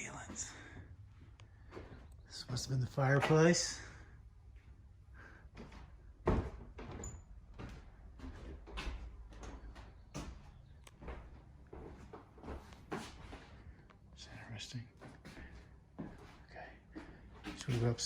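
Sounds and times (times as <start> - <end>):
footsteps and knocks: 0.0 - 13.9, 14.9 - 18.0.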